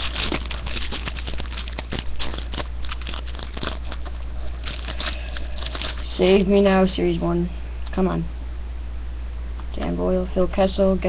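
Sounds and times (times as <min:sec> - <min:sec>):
wrapper tearing and crinkling: 0:00.0 - 0:06.5
steady low hum: 0:00.0 - 0:11.0.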